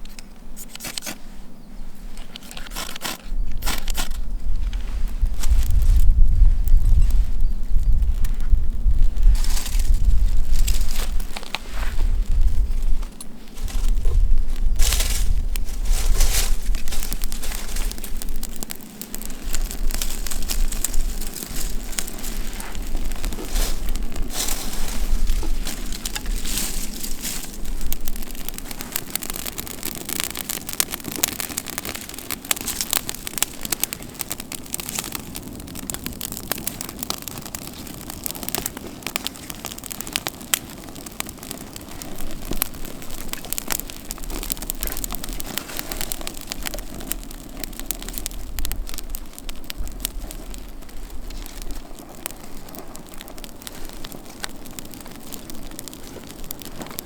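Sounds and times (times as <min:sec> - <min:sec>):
campfire crackling: 0:00.0 - 0:57.0.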